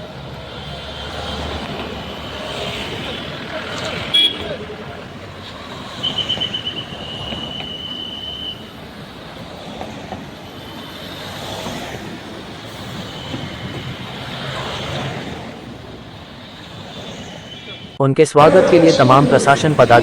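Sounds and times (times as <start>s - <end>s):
passenger train rolling: 0.0s - 20.0s
wheel and brake squeal: 5.4s - 8.8s, 16.1s - 18.0s.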